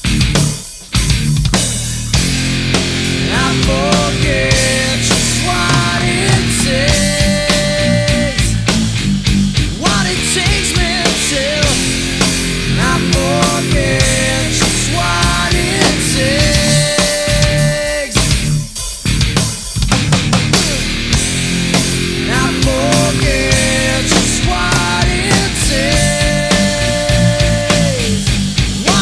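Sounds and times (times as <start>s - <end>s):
heavy rock band playing: 0.0s - 29.0s.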